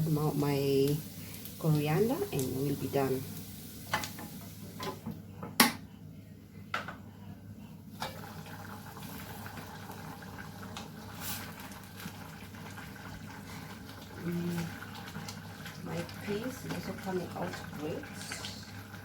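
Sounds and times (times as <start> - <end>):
pot bubbling on stove: 0.0 - 5.0, 7.8 - 19.0.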